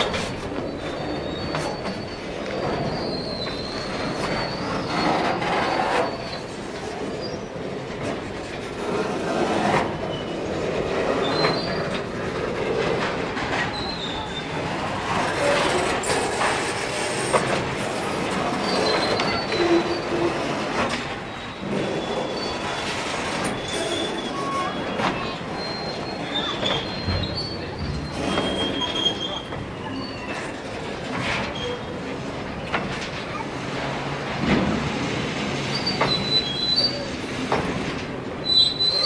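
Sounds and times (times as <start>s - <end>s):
train wheels rumbling on rails: 0.0s - 39.0s
high-pitched wheel squeals: 0.1s - 6.6s, 15.2s - 20.5s, 21.3s - 30.6s, 35.7s - 37.2s, 38.4s - 39.0s
wheels clacking over rail joints: 7.6s - 39.0s.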